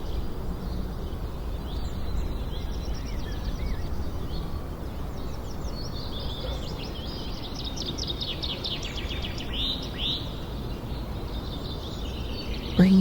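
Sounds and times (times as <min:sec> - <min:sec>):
low background noise: 0:12.8 - 0:13.0.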